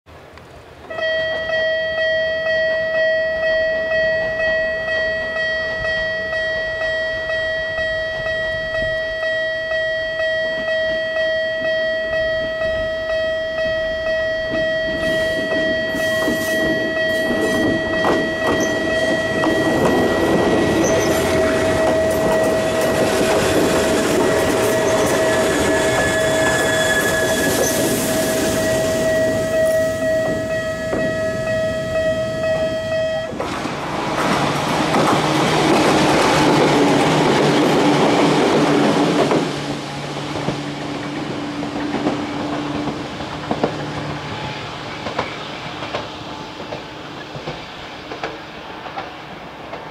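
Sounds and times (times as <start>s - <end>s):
electric train passing close: 0.2s - 49.9s
level-crossing warning signal: 0.8s - 49.0s
wheels clattering over rail joints: 14.5s - 49.9s.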